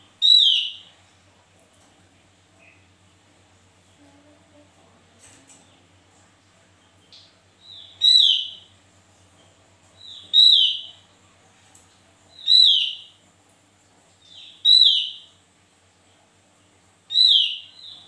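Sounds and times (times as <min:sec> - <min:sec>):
songbird calling: 0:00.2 - 0:00.8, 0:07.1 - 0:08.7, 0:10.0 - 0:11.0, 0:12.3 - 0:13.2, 0:14.2 - 0:15.3, 0:17.1 - 0:18.0.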